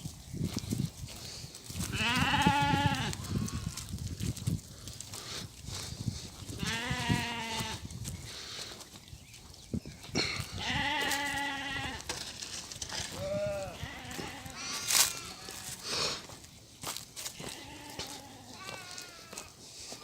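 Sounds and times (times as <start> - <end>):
sheep bleating: 1.9 - 3.8, 6.6 - 7.8, 10.4 - 12.0, 13.1 - 16.0, 17.4 - 19.5.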